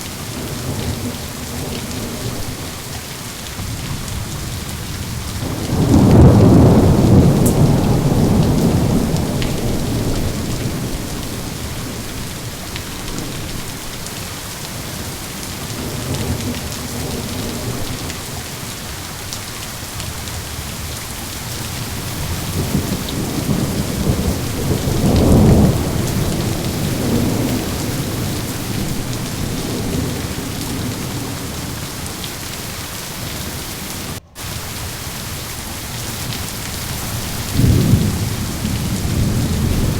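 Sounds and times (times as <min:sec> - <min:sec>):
heavy rain: 0:00.0 - 0:39.9
rolling thunder: 0:03.6 - 0:14.2, 0:21.4 - 0:33.4, 0:36.0 - 0:39.9.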